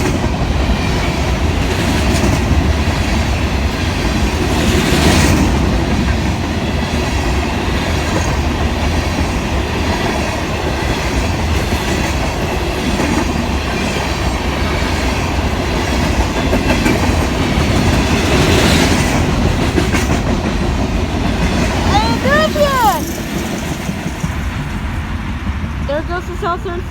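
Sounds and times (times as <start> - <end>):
freight train wheels on rails: 0.0 - 26.9.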